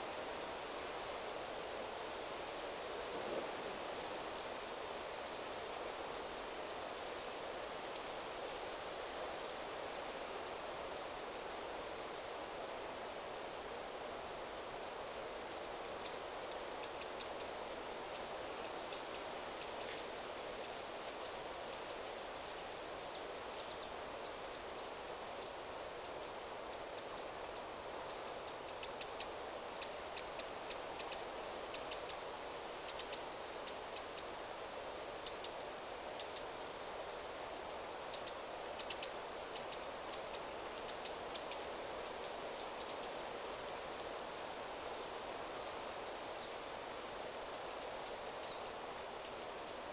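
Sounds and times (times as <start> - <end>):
wind rustling through trees: 0.0 - 49.9.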